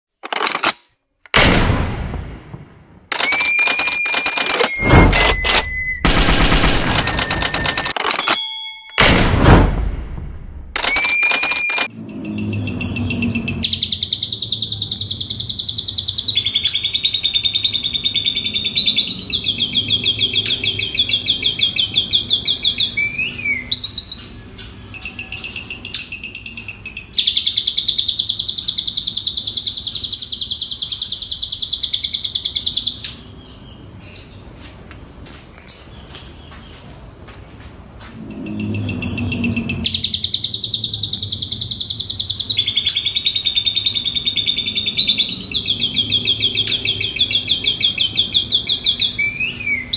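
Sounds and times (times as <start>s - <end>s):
starling singing rapid trills: 10.8s - 33.0s, 38.2s - 49.9s.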